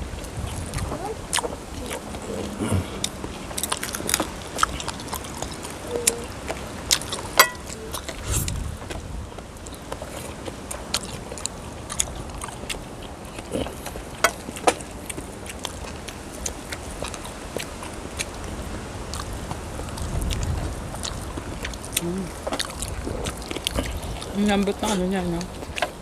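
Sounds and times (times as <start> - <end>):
chewing: 0.0 - 26.0
low steady rumble: 0.0 - 26.0
utensils clicking on plates: 7.4 - 7.8.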